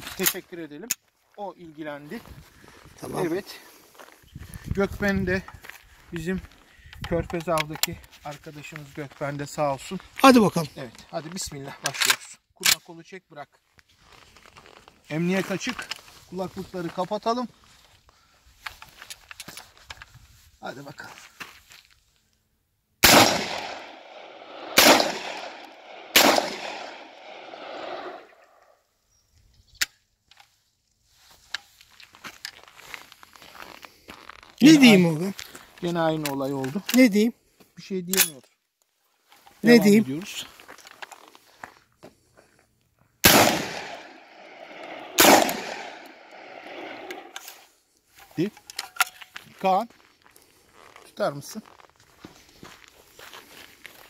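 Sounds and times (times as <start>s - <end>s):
man speaking: 3.0s - 3.7s, 7.2s - 12.0s, 34.6s - 38.4s, 39.6s - 40.5s
shotgun shots with echo: 23.0s - 28.0s, 43.2s - 47.0s
sharp gun click: 24.8s - 27.0s, 44.8s - 46.1s.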